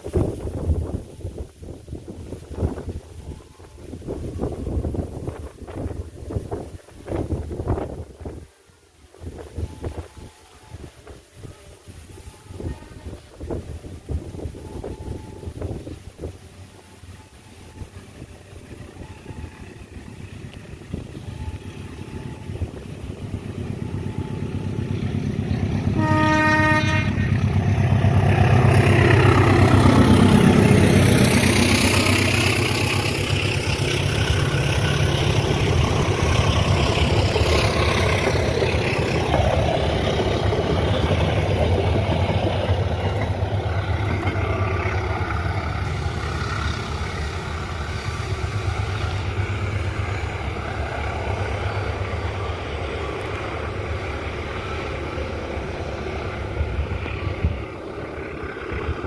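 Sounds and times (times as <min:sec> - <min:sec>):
diesel locomotive rumbling past: 0:00.0 - 0:59.0
train horn blast: 0:11.4 - 0:13.7, 0:25.8 - 0:27.5
carriages rolling past: 0:27.2 - 0:59.0.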